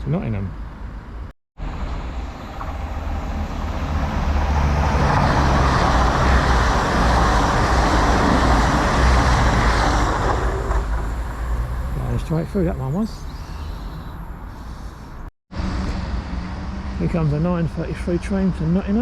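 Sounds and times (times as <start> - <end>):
train passing: 1.6 - 15.8.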